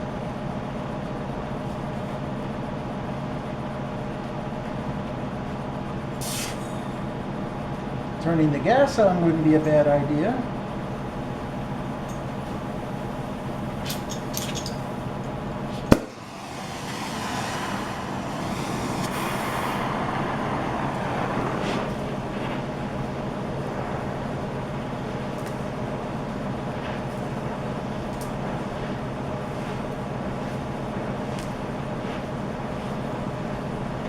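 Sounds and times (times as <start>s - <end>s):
background hum: 0.0s - 34.0s
torch flame hissing: 6.0s - 8.1s, 10.8s - 34.0s
gas igniting pop: 6.2s - 6.8s, 15.8s - 16.2s.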